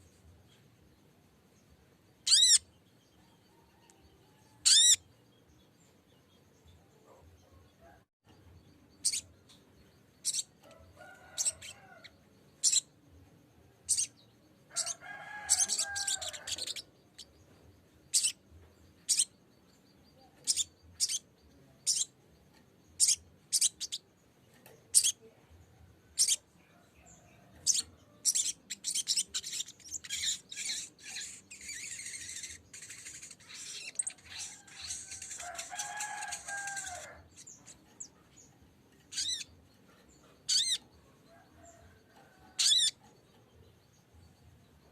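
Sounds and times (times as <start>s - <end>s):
bird chirping: 0.0s - 44.9s
bird chattering: 2.2s - 2.7s, 4.6s - 5.0s, 9.0s - 9.3s, 10.2s - 10.5s, 13.9s - 17.3s, 18.1s - 18.4s, 20.4s - 21.2s, 21.8s - 22.1s, 23.0s - 24.0s, 26.2s - 26.4s, 27.6s - 38.2s, 39.0s - 39.5s, 40.4s - 40.9s, 42.6s - 43.0s.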